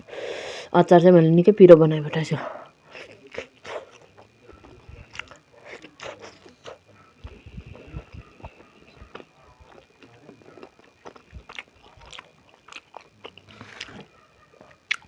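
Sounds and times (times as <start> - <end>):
person chewing food: 2.9 - 15.0
mouth clicks and smacks: 3.3 - 15.0.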